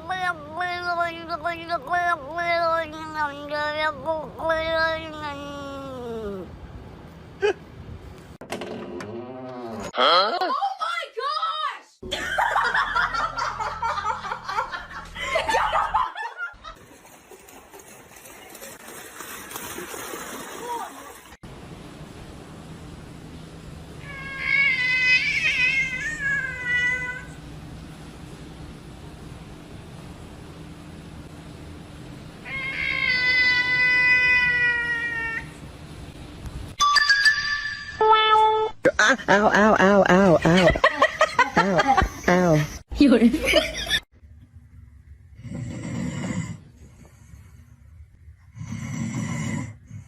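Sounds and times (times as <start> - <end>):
person laughing: 7.4 - 7.7, 12.0 - 16.6, 38.8 - 44.0.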